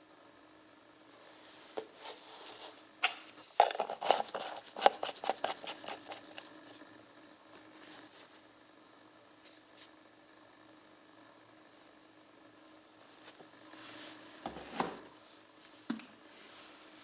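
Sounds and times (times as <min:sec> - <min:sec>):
faint steady hum: 0:00.0 - 0:17.0
handling clicks taps and rustles: 0:03.0 - 0:06.5.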